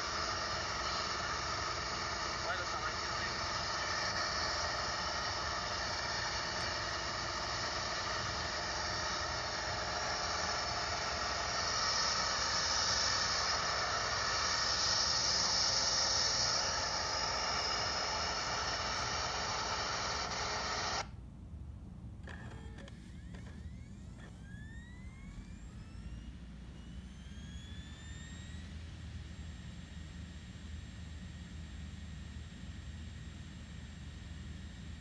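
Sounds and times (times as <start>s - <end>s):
rushing air in cabin: 0.0s - 21.0s
small plane engine drone: 0.0s - 35.0s.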